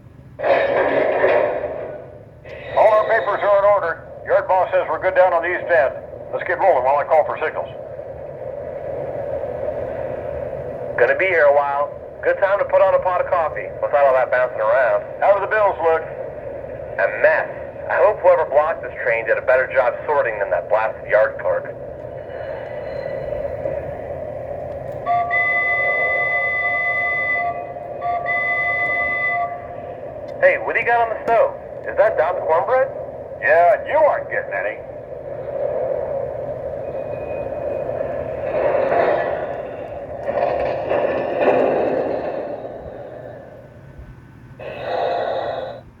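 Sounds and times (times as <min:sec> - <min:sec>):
model train rolling rumble: 0:00.0 - 0:46.0
hissing noise bursts: 0:00.4 - 0:11.4
locomotive air horn blast: 0:25.1 - 0:30.0.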